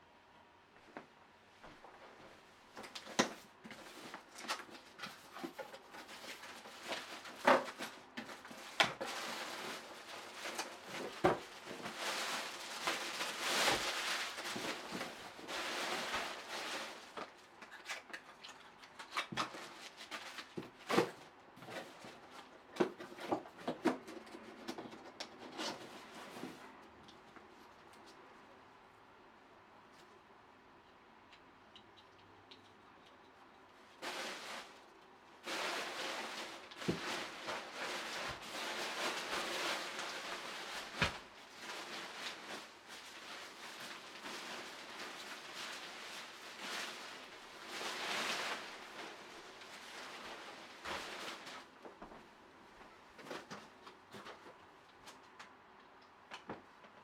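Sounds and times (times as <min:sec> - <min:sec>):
packaging rustling: 0:02.8 - 0:23.1, 0:34.0 - 0:51.8.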